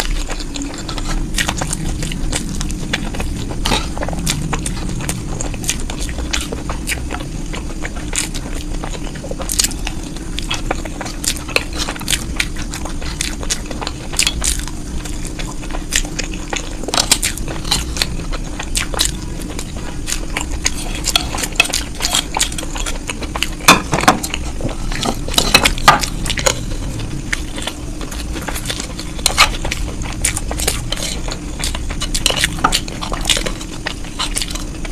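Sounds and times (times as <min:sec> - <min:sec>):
biting and chewing: 0:00.0 - 0:34.9
steady low hum: 0:00.0 - 0:34.9
cutlery scraping a plate: 0:23.6 - 0:26.9.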